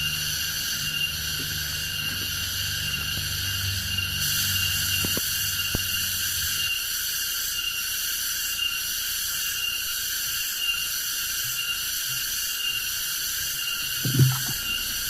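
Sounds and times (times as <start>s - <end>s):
chorus of forest insects: 0.0s - 15.0s
thin pulsing tone: 13.6s - 15.0s.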